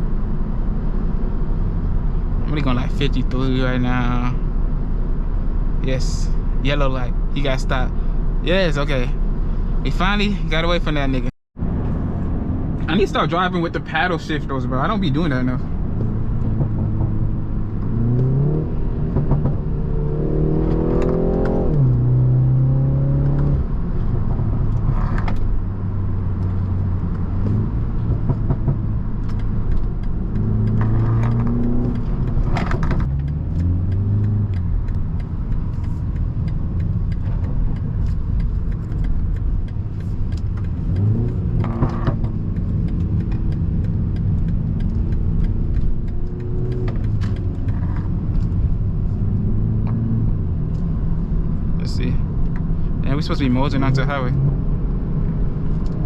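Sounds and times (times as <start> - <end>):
road rumble: 0.0 - 56.0
car engine accelerating through gears: 15.0 - 56.0.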